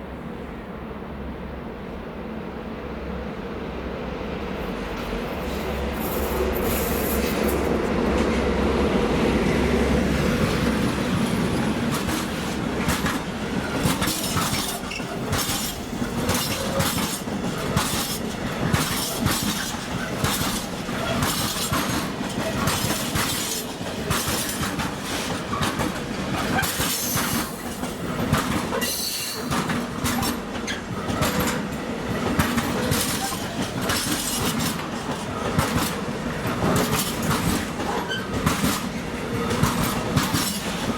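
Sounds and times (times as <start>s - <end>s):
train deep hum: 0.0s - 40.9s
train wheels clattering over rail joints: 10.4s - 40.9s.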